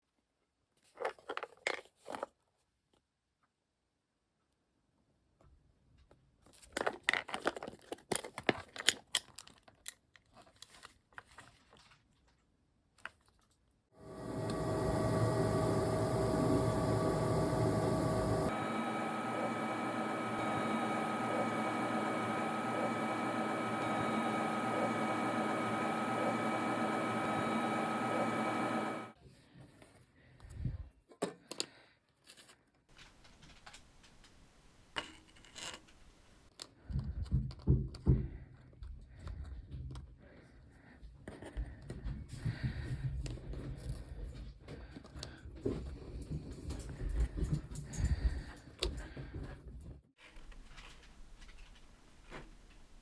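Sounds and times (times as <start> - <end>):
small electric motor running: 14.0 - 29.2.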